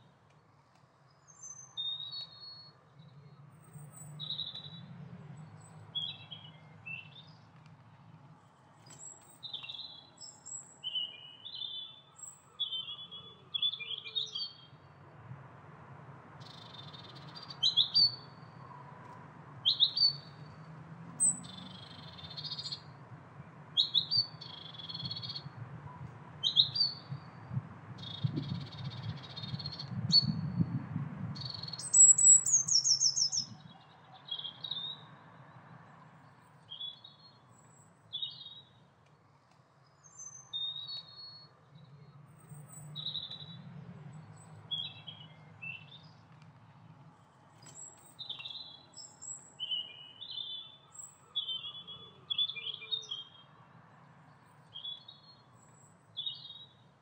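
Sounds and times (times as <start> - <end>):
small birds chirping: 1.1 - 7.7, 8.8 - 14.8, 19.6 - 20.6, 21.2 - 22.9, 23.8 - 25.5, 28.0 - 30.4, 31.4 - 35.1, 39.8 - 46.4, 47.6 - 53.5.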